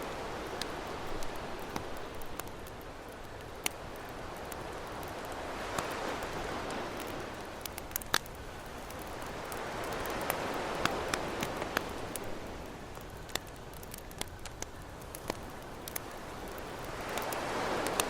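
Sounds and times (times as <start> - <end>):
ocean waves washing: 0.0 - 14.3, 15.0 - 18.0
campfire crackling and popping: 0.0 - 18.0.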